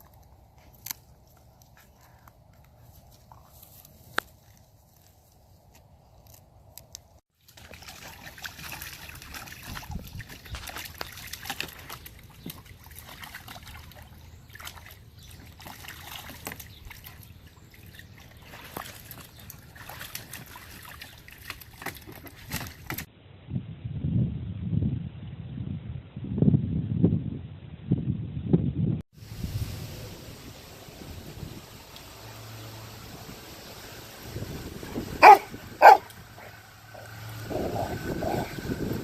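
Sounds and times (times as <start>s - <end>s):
water sloshing and splashing: 7.4s - 23.1s.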